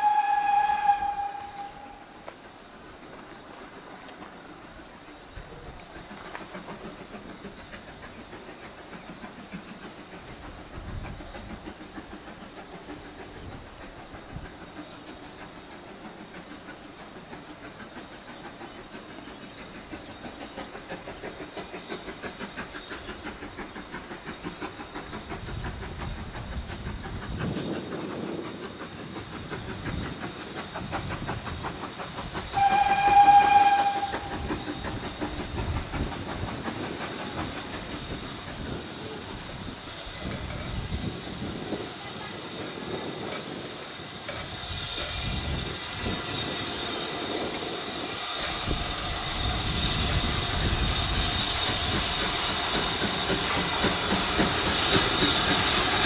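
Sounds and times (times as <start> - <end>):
locomotive whistle: 0.0 - 2.2, 32.5 - 35.0
train running rhythmically: 0.0 - 56.0.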